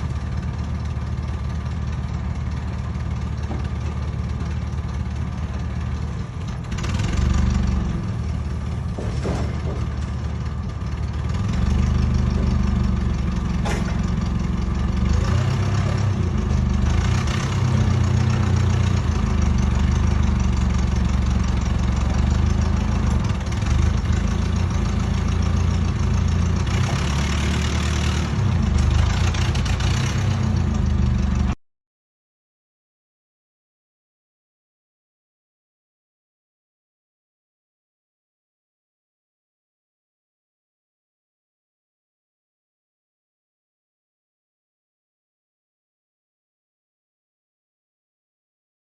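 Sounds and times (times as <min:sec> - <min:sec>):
large engine running: 0:00.0 - 0:31.6.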